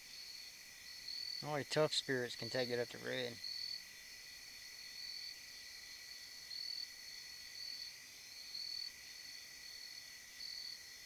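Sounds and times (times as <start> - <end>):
crickets trilling in chorus: 0.0 - 11.0.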